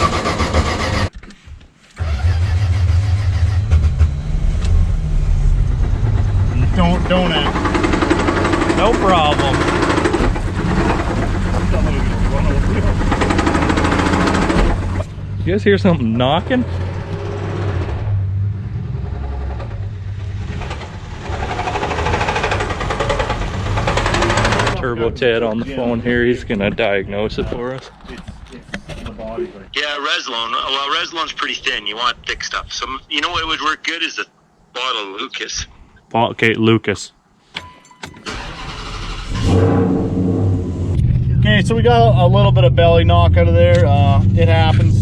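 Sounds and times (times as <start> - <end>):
car engine starting and running: 0.0 - 1.1, 2.0 - 24.9, 37.6 - 45.0
engine knocking: 6.0 - 15.0, 20.4 - 24.8.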